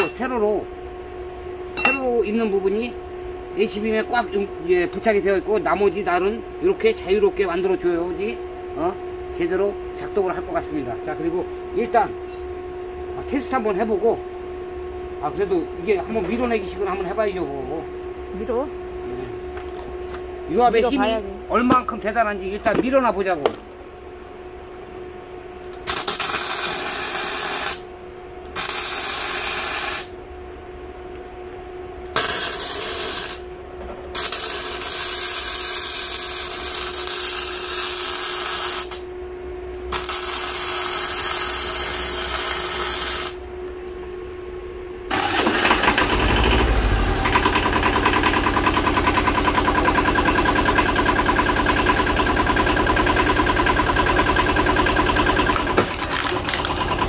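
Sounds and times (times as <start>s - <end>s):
tractor engine running: 45.2s - 57.0s.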